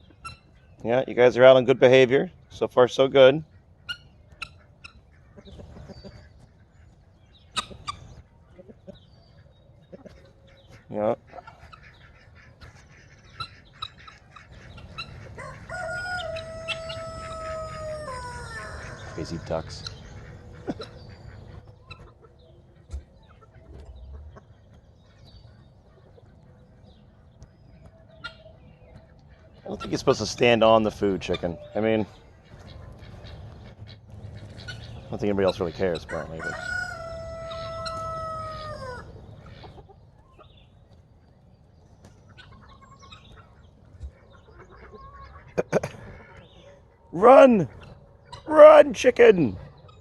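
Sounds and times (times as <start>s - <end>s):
chickens clucking: 0.0s - 50.0s
rooster crowing: 15.4s - 19.4s, 36.2s - 39.1s.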